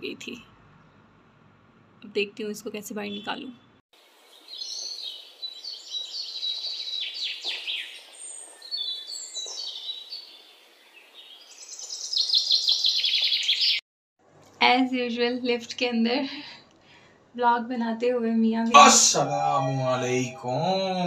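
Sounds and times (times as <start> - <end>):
songbirds chirping and trilling: 4.0 - 13.8.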